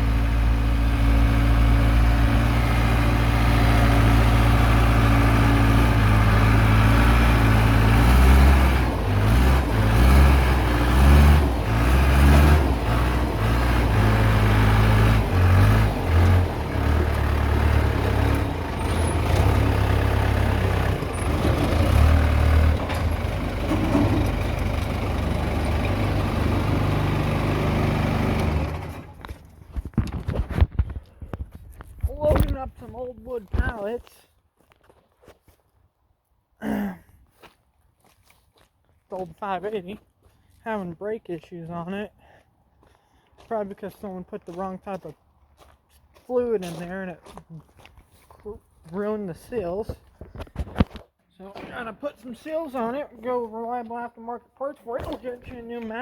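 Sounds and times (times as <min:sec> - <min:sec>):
diesel engine revving: 0:00.0 - 0:29.6
knocks and clatters: 0:21.1 - 0:24.7.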